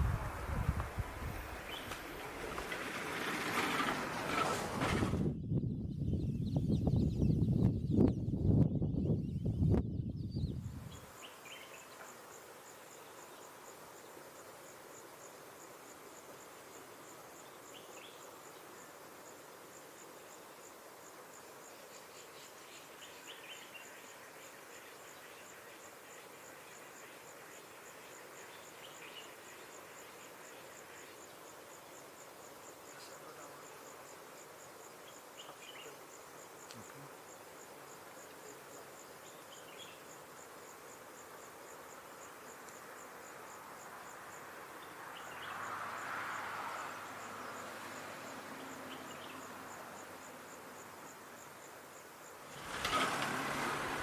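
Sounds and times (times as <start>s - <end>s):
insect chirping: 0.0s - 4.5s, 5.6s - 54.0s
rushing noise with low hum: 0.0s - 8.7s.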